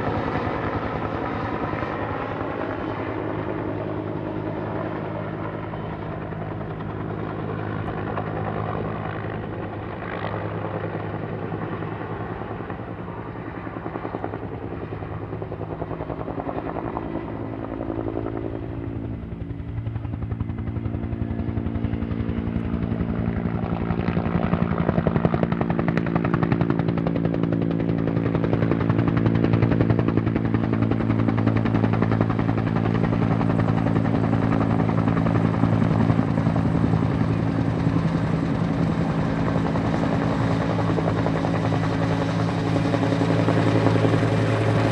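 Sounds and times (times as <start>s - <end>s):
helicopter rotor and engine: 0.0s - 44.9s.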